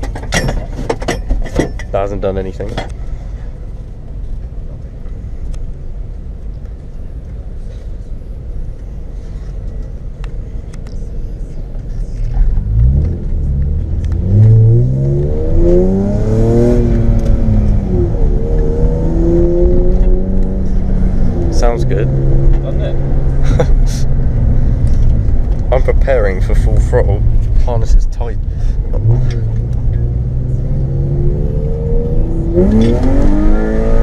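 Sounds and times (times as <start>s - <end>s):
car engine revving: 11.0s - 34.0s.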